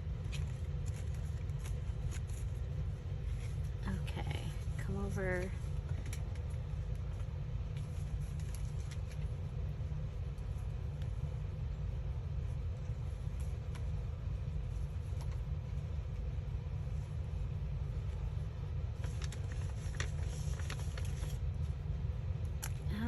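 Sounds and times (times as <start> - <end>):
low background rumble: 0.0 - 23.0
paper rustling and clicks: 19.0 - 21.4.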